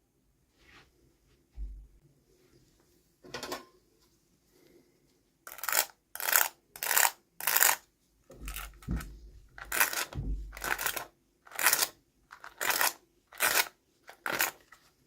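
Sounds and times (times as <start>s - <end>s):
packaging scrape: 9.6s - 14.8s.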